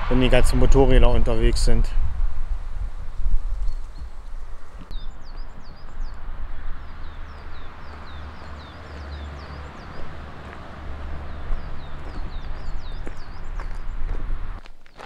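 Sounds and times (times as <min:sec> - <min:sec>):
low rumble: 0:00.0 - 0:08.2
distant car traffic hum: 0:00.0 - 0:14.7
songbird singing: 0:02.5 - 0:15.0.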